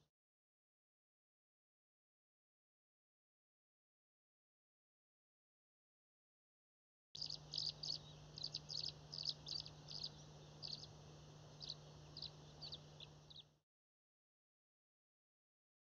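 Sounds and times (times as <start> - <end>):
small bird chirping: 7.2 - 13.6
steady low hum: 7.2 - 13.6.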